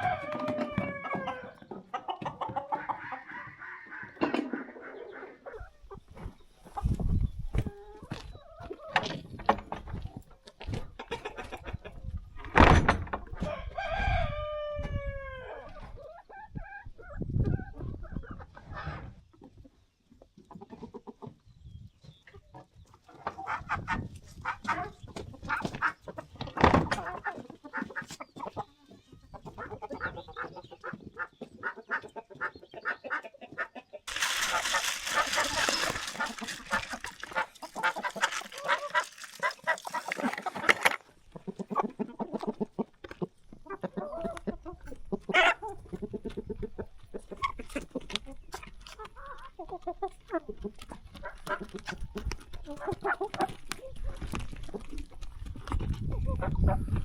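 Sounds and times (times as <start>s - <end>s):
rooster crowing: 0.0s - 1.5s, 13.5s - 15.5s
chickens clucking: 0.0s - 12.4s, 13.2s - 57.0s.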